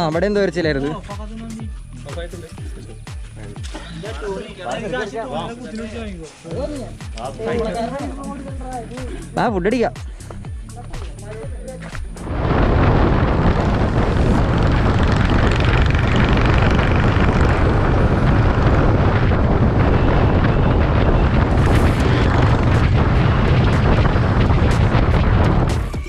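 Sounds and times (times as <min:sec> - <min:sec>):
vehicle low rumble: 0:10.3 - 0:26.0
wind buffeting microphone: 0:11.0 - 0:26.0.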